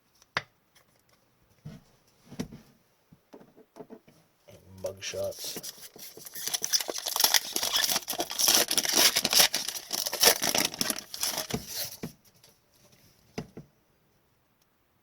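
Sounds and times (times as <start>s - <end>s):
foil wrapper tearing and crinkling: 5.6s - 12.0s.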